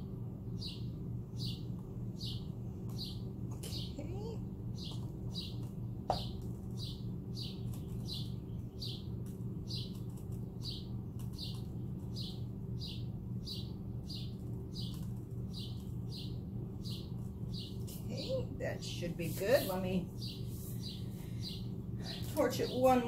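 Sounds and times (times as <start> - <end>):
steady low hum: 0.0 - 23.0
bird chirping: 0.5 - 19.0, 19.6 - 22.8.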